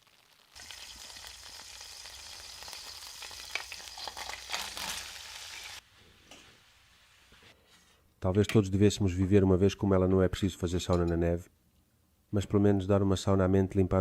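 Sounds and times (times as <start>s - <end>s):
sizzling on a hot surface: 0.0s - 7.4s.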